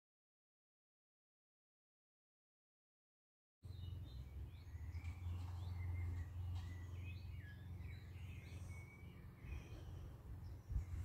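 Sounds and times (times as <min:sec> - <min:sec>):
birds singing: 0:03.6 - 0:11.0.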